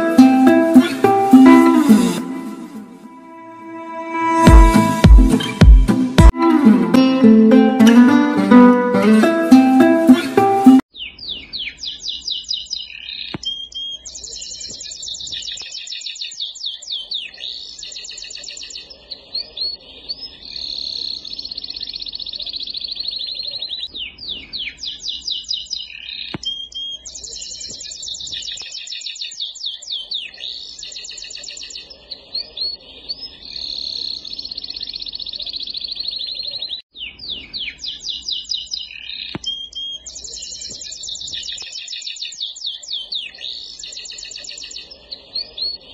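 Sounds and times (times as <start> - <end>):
songbirds chirping in trills: 9.6 - 45.9.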